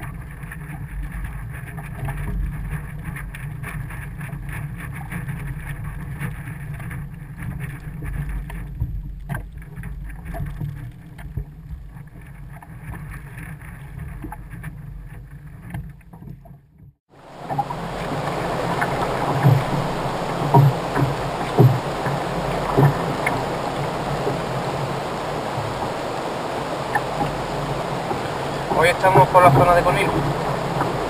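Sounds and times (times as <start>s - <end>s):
rumble of water and wind: 0.0s - 31.0s
short knocks: 17.4s - 24.4s.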